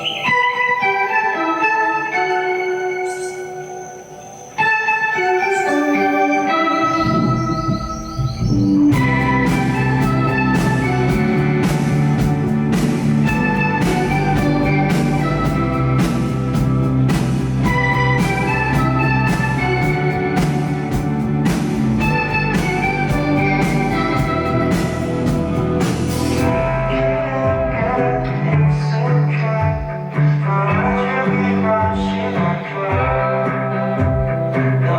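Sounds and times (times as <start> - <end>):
live band playing instrumental: 8.9 - 28.0.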